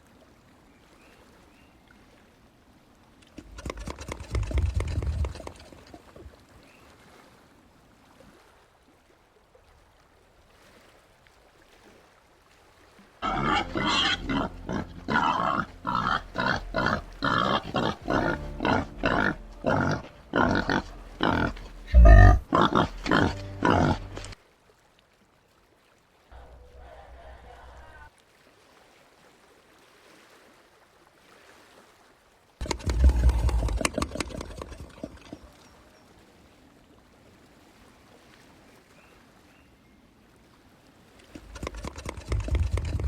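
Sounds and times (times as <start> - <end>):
peccary rasping calls: 3.2 - 6.0, 13.2 - 24.4, 32.6 - 35.6, 41.4 - 43.0.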